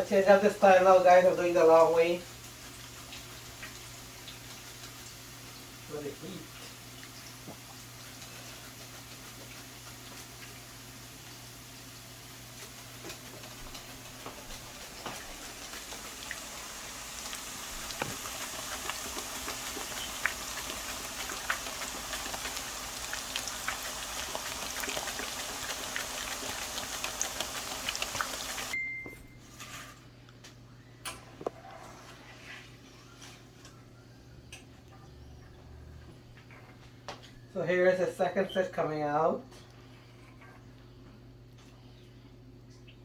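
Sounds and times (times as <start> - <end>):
plantain slices frying in oil: 0.0 - 28.8
oil crackling and popping: 6.6 - 28.8.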